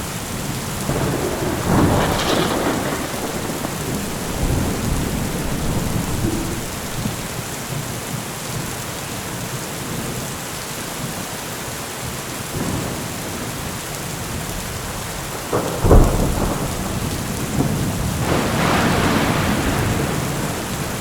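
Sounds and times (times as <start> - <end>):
rolling thunder: 0.0 - 7.9, 14.7 - 21.0
steady rain: 0.0 - 21.0.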